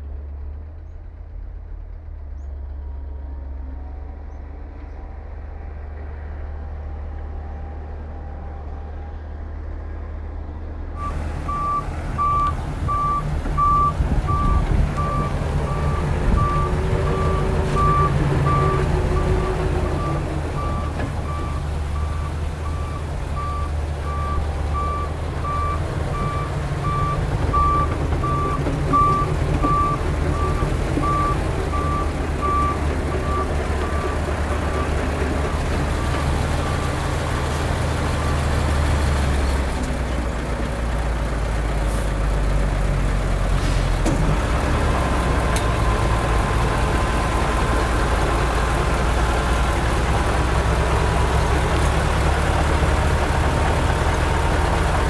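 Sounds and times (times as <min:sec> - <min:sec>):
diesel engine rumble: 0:00.0 - 0:55.0
reversing alarm beeping: 0:11.0 - 0:37.0.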